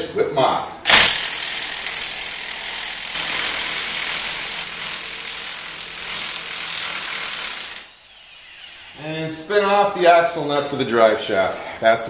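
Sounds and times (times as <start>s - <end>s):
impact wrench running: 0.9s - 9.0s.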